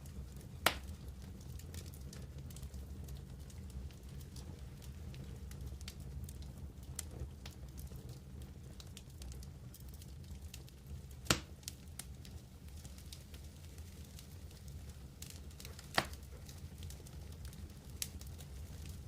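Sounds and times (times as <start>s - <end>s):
wood campfire crackling: 0.0s - 19.0s
loud pop from fire: 0.6s - 0.9s, 11.2s - 11.7s, 15.6s - 16.4s.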